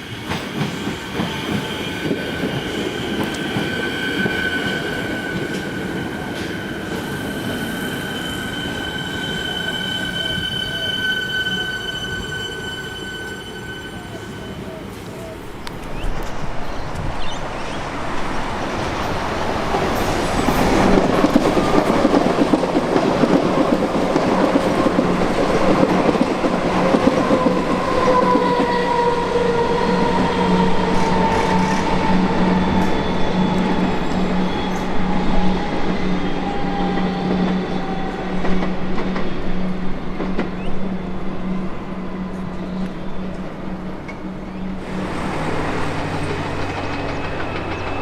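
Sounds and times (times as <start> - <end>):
electric train passing: 0.0 - 48.0
wheels on rails: 44.8 - 48.0.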